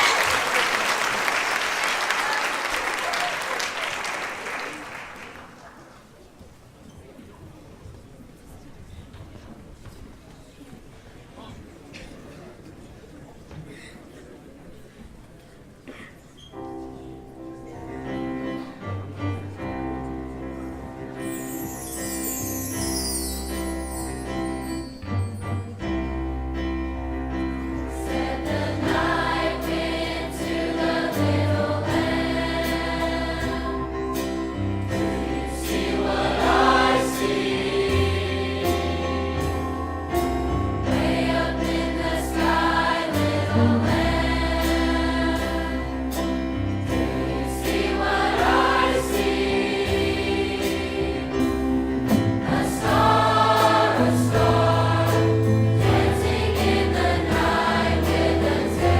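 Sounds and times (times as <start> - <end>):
choir singing: 27.8 - 58.9.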